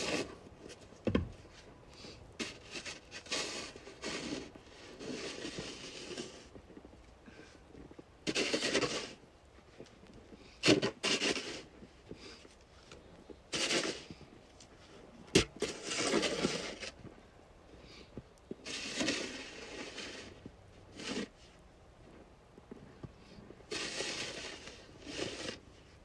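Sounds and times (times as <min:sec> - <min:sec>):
scraping and rubbing: 0:00.0 - 0:00.8, 0:02.4 - 0:06.6, 0:08.2 - 0:09.2, 0:10.6 - 0:12.4, 0:13.5 - 0:14.2, 0:15.3 - 0:17.0, 0:18.5 - 0:21.6, 0:23.7 - 0:26.0.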